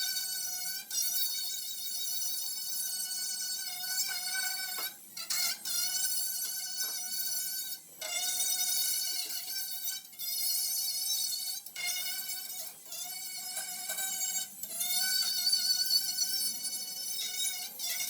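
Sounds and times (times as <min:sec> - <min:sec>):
angle grinder whining on steel: 0:02.6 - 0:18.0.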